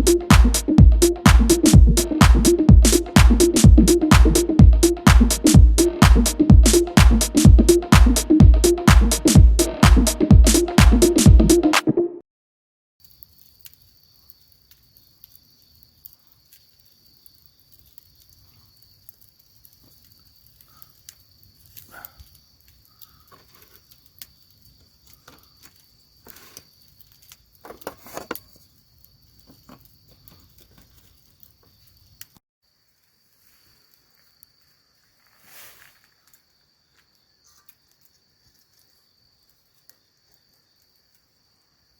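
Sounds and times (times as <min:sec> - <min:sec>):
insects chirring: 0:13.0 - 0:41.9.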